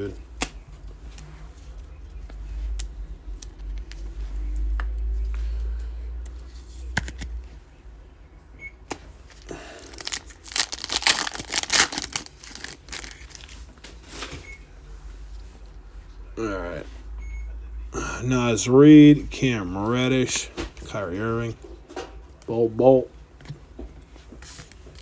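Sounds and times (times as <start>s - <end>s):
foil wrapper tearing and crinkling: 9.6s - 13.6s.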